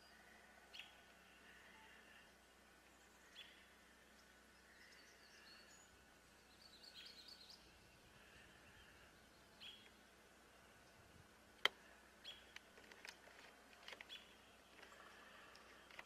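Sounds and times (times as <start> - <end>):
faint bird chirps: 0.0 - 11.1
background hiss: 0.0 - 16.0.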